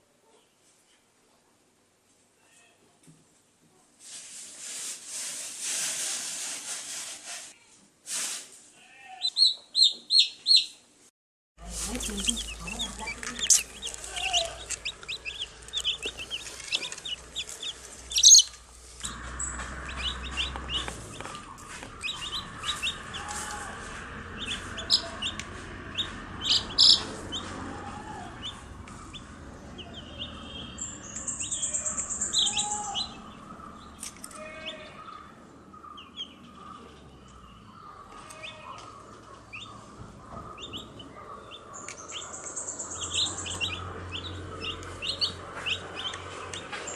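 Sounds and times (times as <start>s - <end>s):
chicks peeping: 9.2s - 10.8s, 11.6s - 46.9s.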